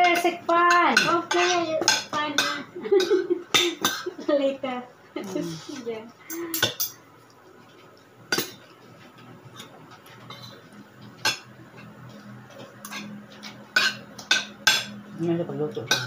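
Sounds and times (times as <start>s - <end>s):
cutlery clinking on plates: 0.0s - 4.2s, 6.3s - 7.0s, 7.7s - 15.0s, 15.8s - 16.0s.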